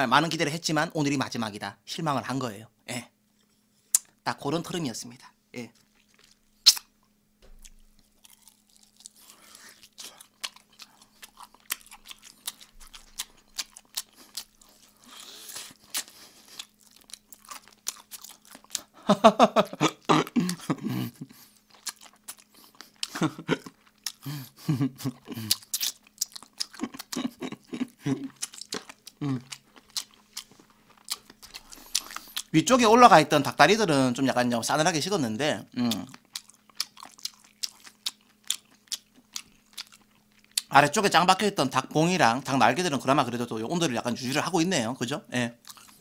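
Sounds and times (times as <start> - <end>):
chewing and lip-smacking: 5.7 - 19.0, 19.9 - 32.5, 35.8 - 40.7, 45.6 - 46.0
person murmuring: 19.5 - 21.3, 26.8 - 28.4, 29.2 - 29.5, 35.7 - 36.1.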